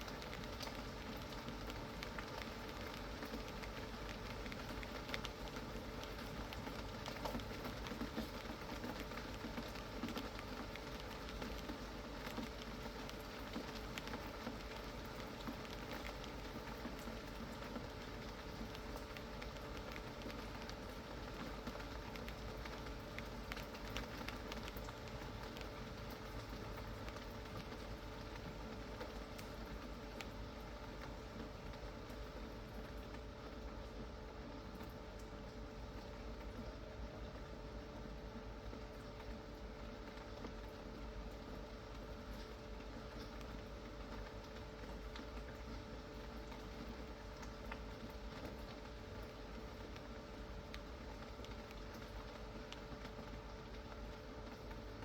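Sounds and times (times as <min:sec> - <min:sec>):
faint steady hum: 0:00.0 - 0:55.0
steady rain: 0:00.0 - 0:55.0.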